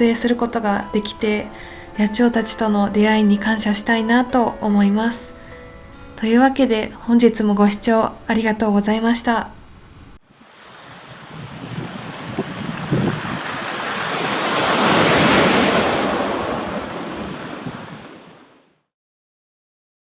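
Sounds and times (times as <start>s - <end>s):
sea surf washing on shore: 10.3s - 18.8s.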